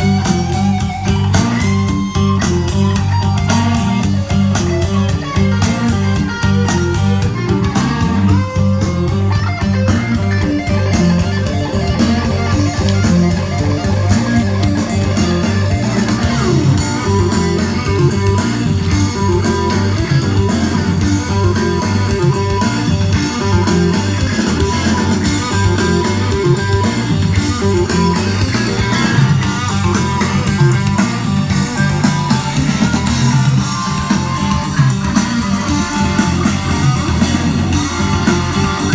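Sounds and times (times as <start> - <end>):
guitar music with bass: 0.0 - 38.9.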